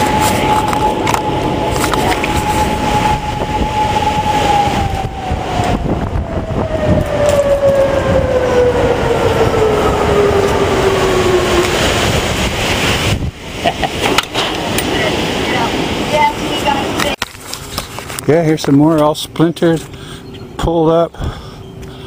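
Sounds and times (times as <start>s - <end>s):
mechanical siren wailing: 0.0s - 13.1s
steady rushing noise: 0.0s - 22.0s.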